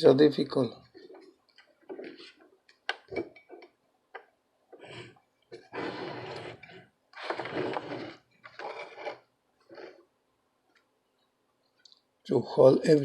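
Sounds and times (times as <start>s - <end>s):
scraping and rustling: 0.8s - 3.8s, 4.8s - 10.1s.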